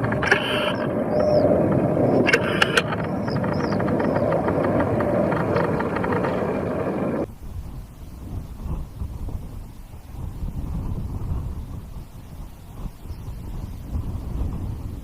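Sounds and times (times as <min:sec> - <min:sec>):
low rumble: 0:00.0 - 0:09.5
aircraft engine noise: 0:00.0 - 0:10.1.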